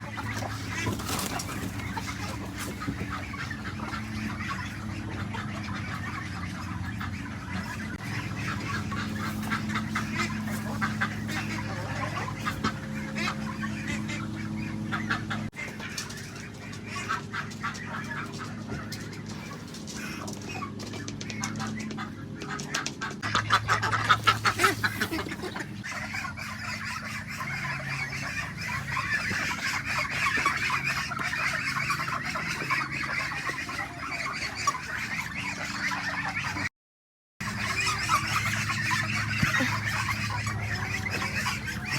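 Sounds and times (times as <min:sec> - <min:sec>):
steady low hum: 0:00.0 - 0:22.4
poultry clucking and calling: 0:00.0 - 0:36.7, 0:37.4 - 0:41.9.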